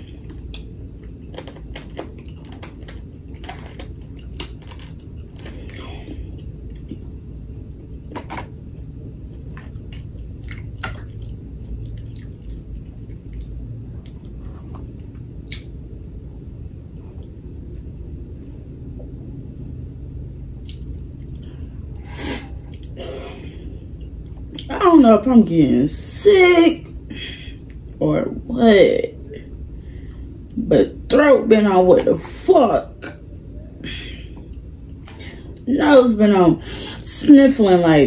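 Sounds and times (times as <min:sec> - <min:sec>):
steady low hum: 0:00.0 - 0:38.0
chewing and biting food: 0:00.1 - 0:07.3, 0:09.3 - 0:15.7.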